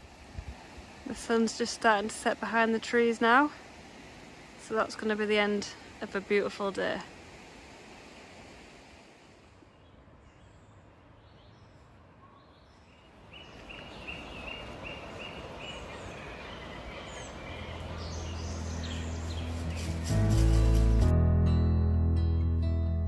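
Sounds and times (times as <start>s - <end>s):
low steady music: 17.9s - 23.0s.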